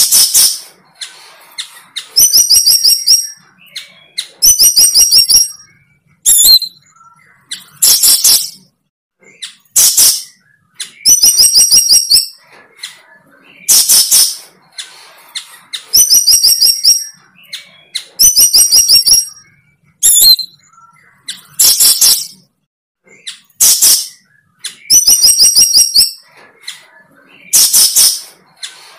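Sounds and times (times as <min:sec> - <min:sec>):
bird trilling: 0:09.3 - 0:22.5, 0:23.1 - 0:28.9.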